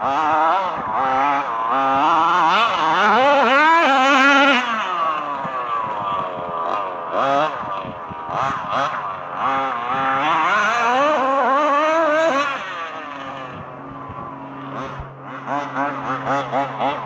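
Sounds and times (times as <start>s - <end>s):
small two-stroke engines revving: 0.0s - 17.0s.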